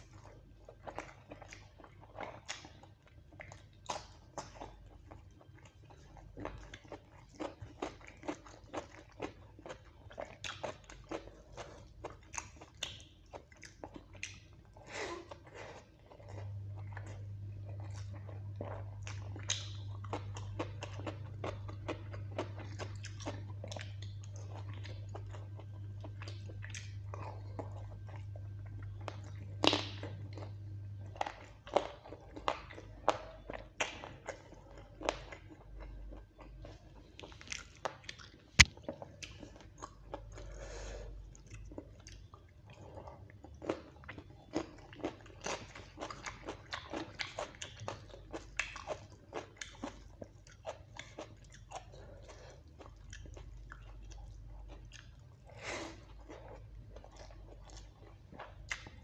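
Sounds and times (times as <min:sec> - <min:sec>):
wet chewing and lip smacks: 0:00.8 - 0:14.8, 0:41.3 - 0:55.4, 0:56.1 - 0:59.0.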